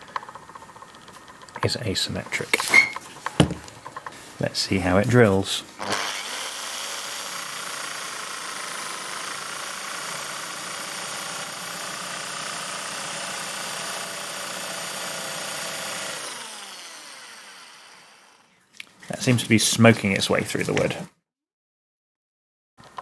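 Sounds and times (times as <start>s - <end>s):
electric drill boring into wood: 5.8s - 18.5s.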